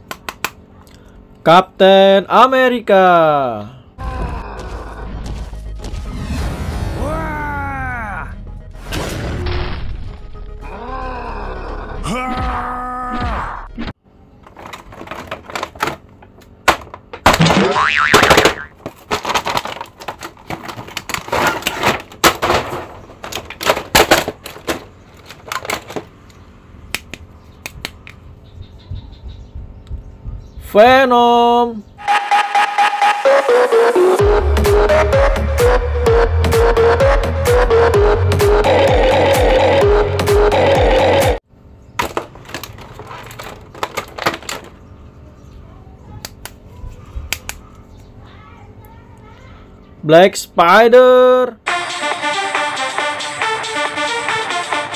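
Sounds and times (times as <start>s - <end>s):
plastic packaging crinkling: 14.5s - 16.4s, 18.8s - 22.1s, 42.1s - 44.6s.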